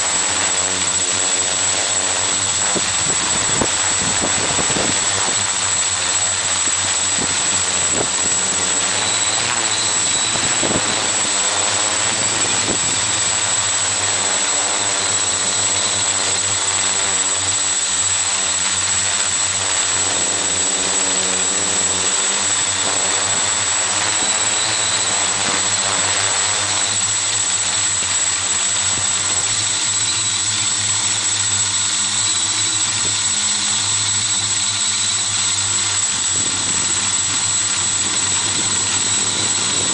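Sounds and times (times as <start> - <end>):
drone motors whirring: 0.0 - 39.9.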